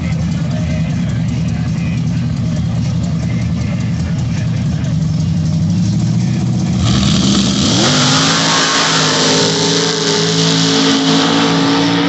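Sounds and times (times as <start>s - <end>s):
engine revving hard: 6.7s - 12.0s.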